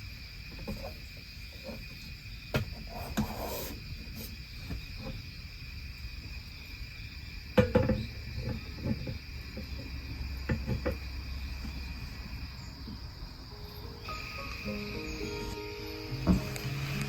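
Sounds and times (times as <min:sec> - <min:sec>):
crickets chirping: 0:00.0 - 0:17.0
knocks and clatters of handling: 0:07.6 - 0:11.1.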